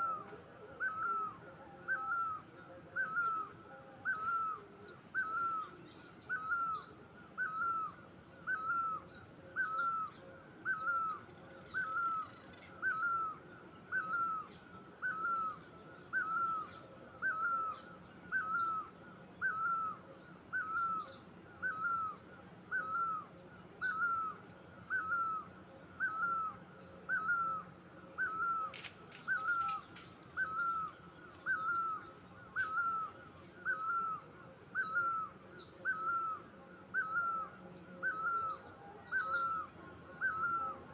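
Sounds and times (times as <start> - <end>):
small birds chirping: 8.6 - 36.4.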